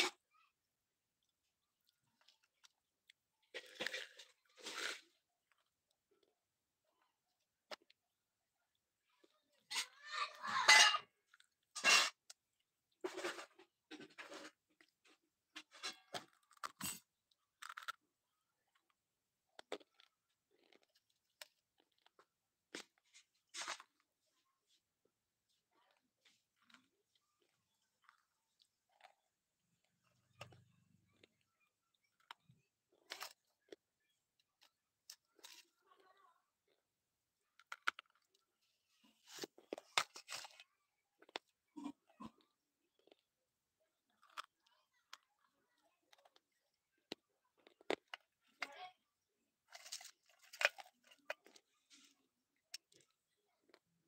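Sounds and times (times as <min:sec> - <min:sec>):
crunchy bites and chews: 0:01.2 - 0:06.2, 0:13.0 - 0:24.1, 0:25.9 - 0:33.8, 0:34.4 - 0:36.0, 0:37.5 - 0:38.4, 0:39.2 - 0:43.3, 0:44.0 - 0:45.2, 0:46.1 - 0:48.7, 0:49.6 - 0:53.8.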